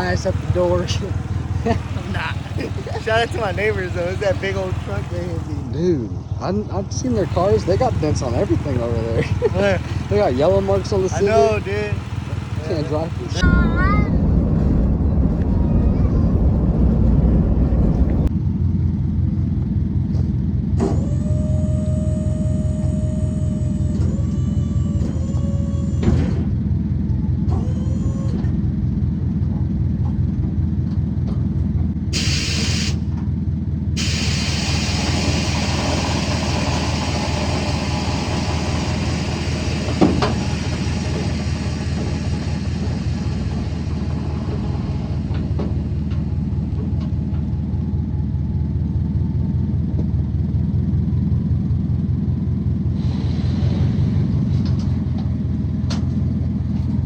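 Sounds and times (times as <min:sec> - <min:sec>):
car rumble: 0:00.0 - 0:57.0
rushing hiss: 0:32.2 - 0:33.0, 0:34.0 - 0:44.3.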